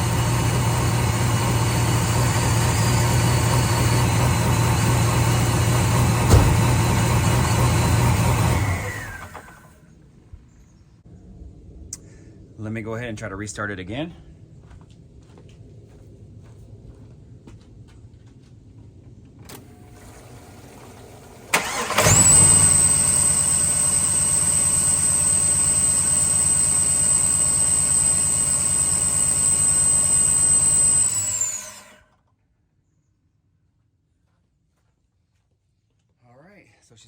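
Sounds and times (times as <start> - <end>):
car engine idling: 0.1 - 9.4
car engine cranking: 2.1 - 9.6, 21.5 - 29.7.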